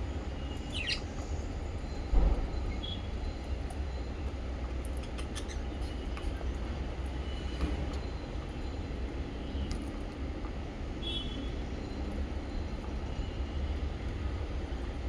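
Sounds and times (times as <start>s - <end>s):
parrots chirping: 0.7s - 1.0s, 5.0s - 5.7s.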